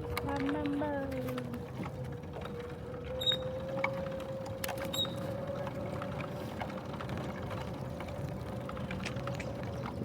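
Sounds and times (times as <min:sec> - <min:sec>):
bicycle whine with light rattle: 0:00.0 - 0:10.0.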